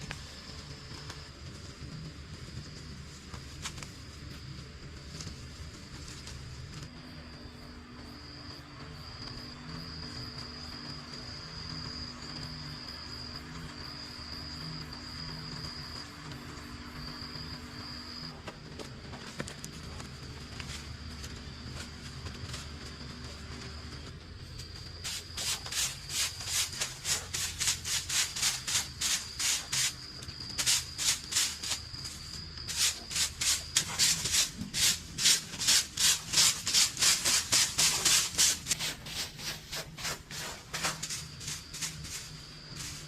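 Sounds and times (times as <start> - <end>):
rhythmic rubbing strokes: 25.0 - 43.0.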